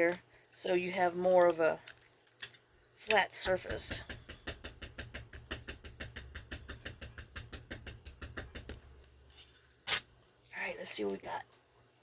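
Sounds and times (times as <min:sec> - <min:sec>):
ink pad tapping rubber stamp: 0:03.5 - 0:08.8.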